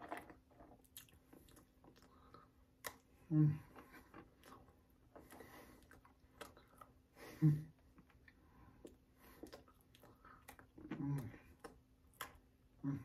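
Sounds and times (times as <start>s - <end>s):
person chewing hard biscuit: 0.0s - 7.1s, 7.8s - 13.0s
person humming: 3.3s - 3.7s.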